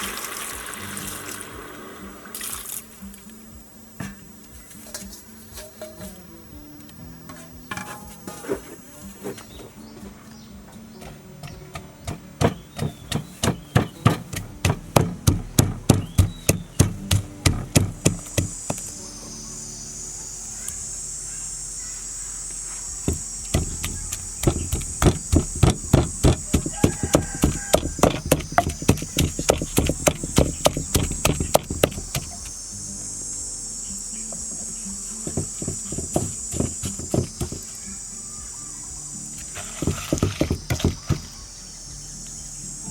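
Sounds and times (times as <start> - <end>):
high insect chirr: 0.0 - 42.9
rapid chopping strokes: 11.5 - 19.0, 23.0 - 32.6, 35.2 - 37.8, 39.4 - 41.4.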